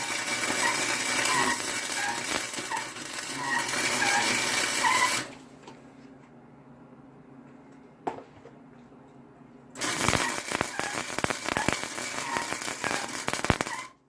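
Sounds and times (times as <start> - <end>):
welding arc crackling: 0.0 - 5.3, 9.8 - 14.0.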